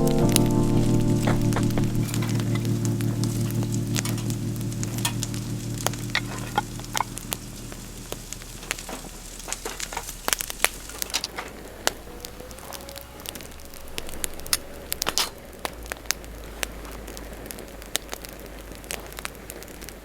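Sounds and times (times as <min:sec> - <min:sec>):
background music: 0:00.0 - 0:08.8
wood fire crackling: 0:00.0 - 0:20.0.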